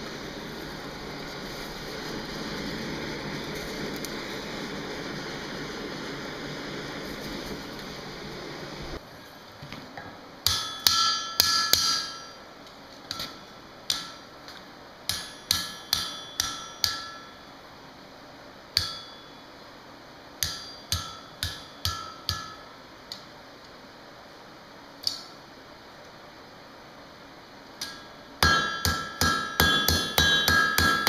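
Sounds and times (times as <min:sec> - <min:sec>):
steady rushing noise: 0:00.0 - 0:09.0
hammer striking steel on anvil: 0:10.4 - 0:12.4, 0:13.1 - 0:14.3, 0:15.1 - 0:17.5, 0:18.8 - 0:19.4, 0:20.4 - 0:22.7, 0:27.8 - 0:31.0.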